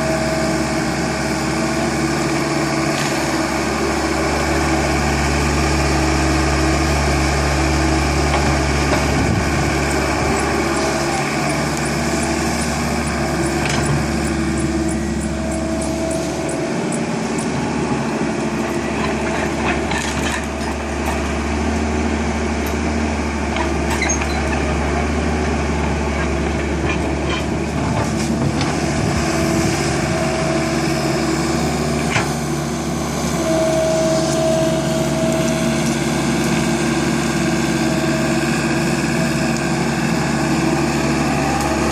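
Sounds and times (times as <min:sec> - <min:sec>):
tractor engine running: 0:00.0 - 0:41.9.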